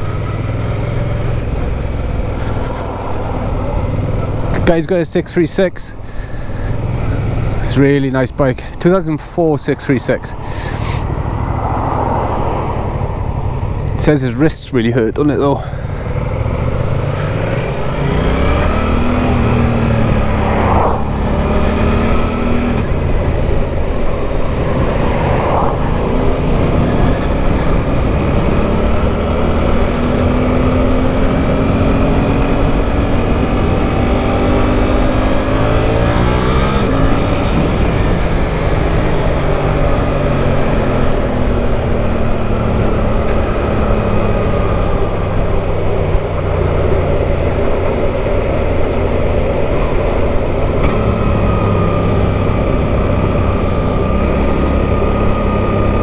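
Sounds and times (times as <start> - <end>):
motorcycle engine accelerating: 0.0 - 56.0
wind noise: 10.3 - 14.0, 16.2 - 56.0.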